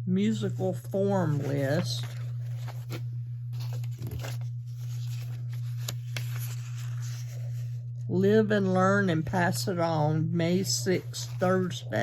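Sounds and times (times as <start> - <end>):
steady low hum: 0.0 - 12.0
paper rustling: 0.4 - 7.8, 10.8 - 12.0.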